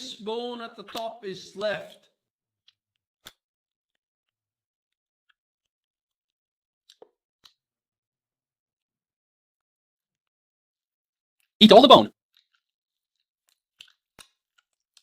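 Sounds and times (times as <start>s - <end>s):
chewing and gnawing meat: 12.3s - 15.0s.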